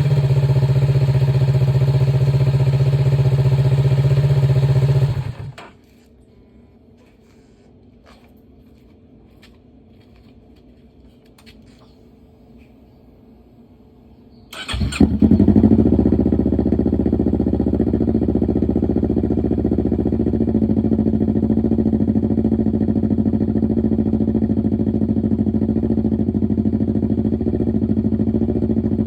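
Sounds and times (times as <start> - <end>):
motorcycle engine idling: 0.0 - 5.6, 14.6 - 29.0
electric starter cranking: 14.6 - 15.1.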